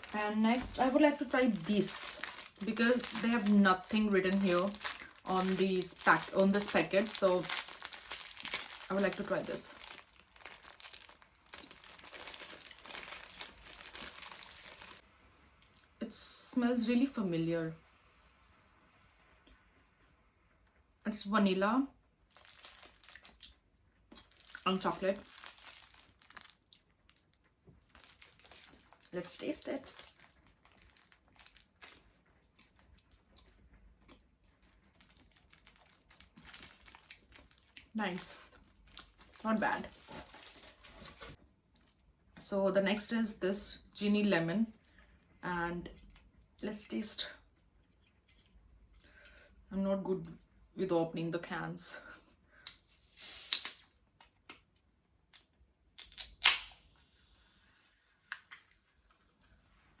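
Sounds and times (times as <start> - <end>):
crunching and chewing snack: 22.3 - 29.1, 29.8 - 38.0.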